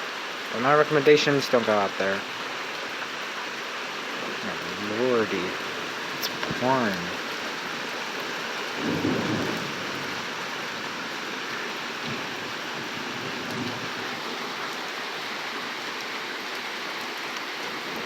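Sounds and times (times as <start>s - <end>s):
heavy rain pouring: 0.0s - 18.0s
thunder rumbling: 4.2s - 11.0s.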